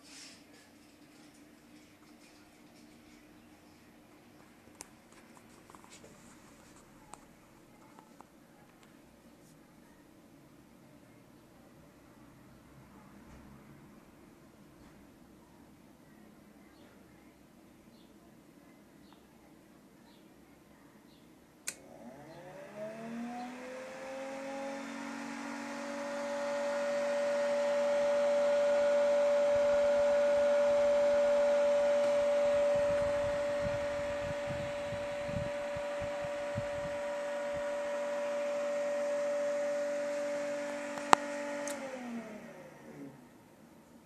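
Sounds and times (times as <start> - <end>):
electric fan motor whine: 21.6 - 43.6.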